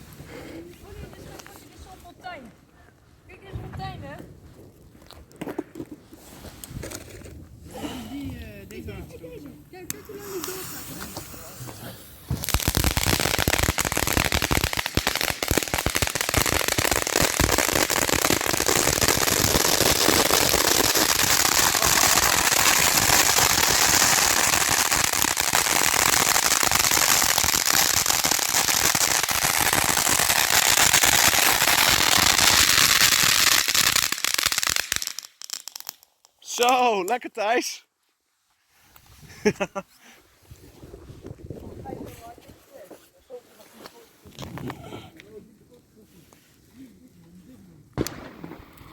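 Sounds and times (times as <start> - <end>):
firework crackling bangs: 10.0 - 36.0, 48.0 - 48.9.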